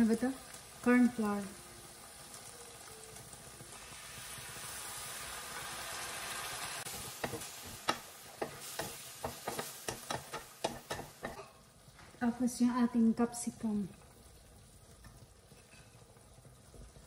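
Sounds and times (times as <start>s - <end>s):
chicken sizzling in a pan: 0.0s - 17.0s
utensil knocking against pan: 7.2s - 11.4s.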